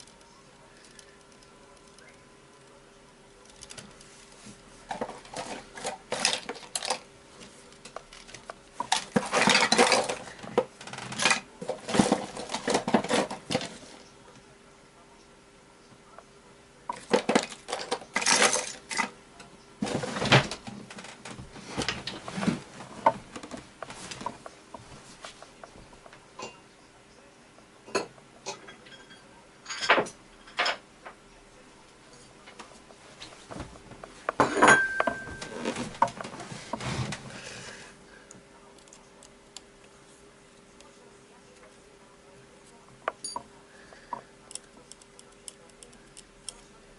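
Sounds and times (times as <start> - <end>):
small parts clicking and rattling: 0.0 - 2.7, 3.4 - 4.1.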